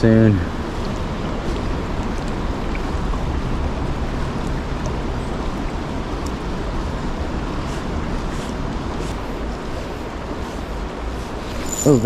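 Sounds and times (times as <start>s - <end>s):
river current rushing: 8.6s - 12.0s.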